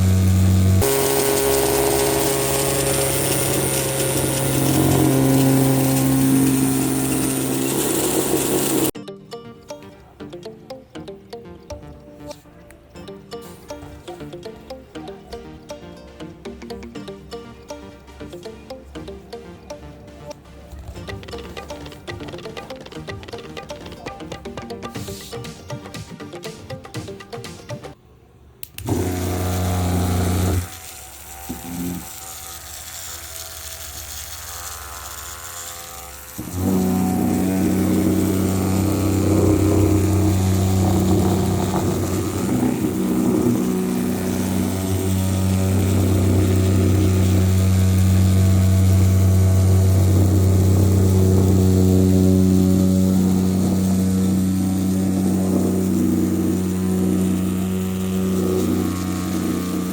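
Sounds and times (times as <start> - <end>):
small electric motor humming: 0.0 - 9.0, 28.8 - 59.9.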